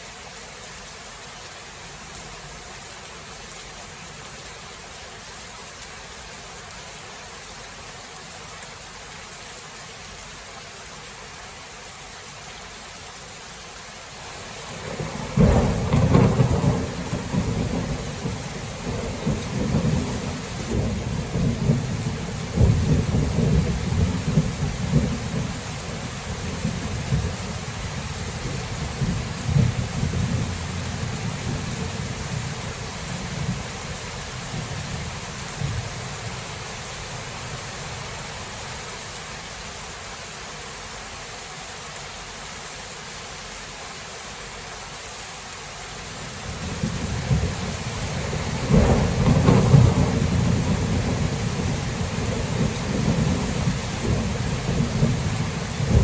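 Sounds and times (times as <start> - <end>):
steady rain: 0.0 - 56.0
rolling thunder: 14.7 - 33.8, 46.5 - 56.0.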